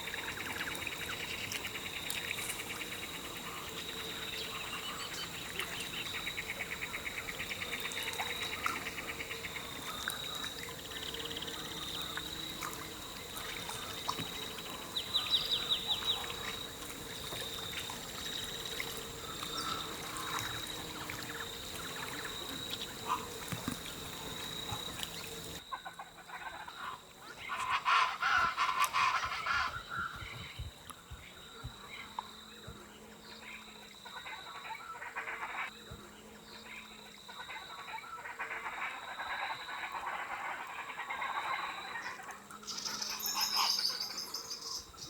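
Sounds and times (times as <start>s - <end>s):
frogs calling: 0.0s - 45.0s
birds calling: 1.1s - 25.6s, 41.2s - 45.0s.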